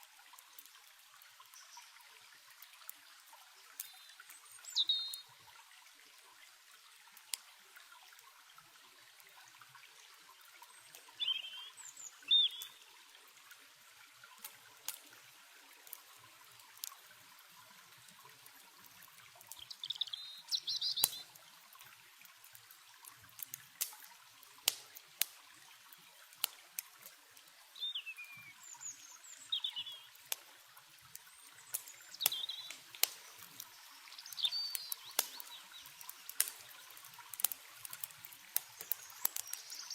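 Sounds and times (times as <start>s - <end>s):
campfire crackling: 0.0s - 39.9s
stream trickling: 0.0s - 39.9s
songbirds chirping: 3.4s - 5.4s, 10.6s - 13.2s, 19.4s - 21.4s, 27.6s - 30.3s, 31.2s - 37.4s, 38.5s - 39.9s.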